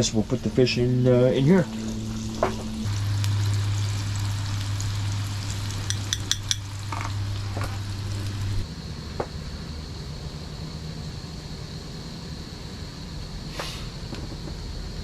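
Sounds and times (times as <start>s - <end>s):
steady low hum: 0.0s - 15.0s
fish frying in hot oil: 2.3s - 8.6s
metal utensil clinks: 5.9s - 6.7s.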